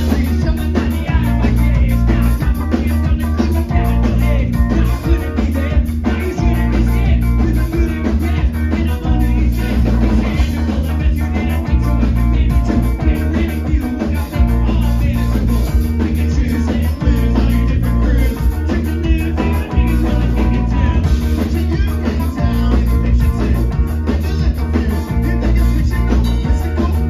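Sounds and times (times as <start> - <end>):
punk band playing live: 0.0 - 27.0.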